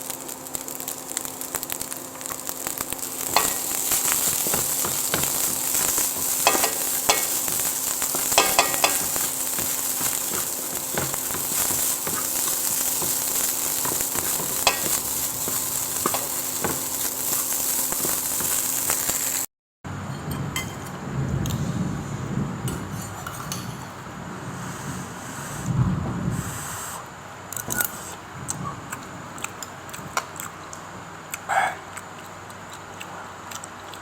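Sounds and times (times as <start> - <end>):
food sizzling in a pan: 0.0 - 19.5
spatula scraping a pan: 3.2 - 18.9.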